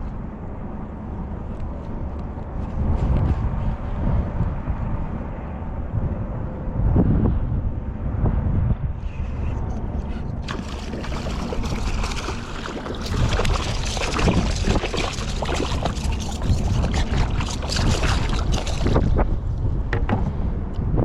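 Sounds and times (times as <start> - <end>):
wind buffeting microphone: 0.0 - 21.0
water slapping against kayak hull: 10.4 - 19.3.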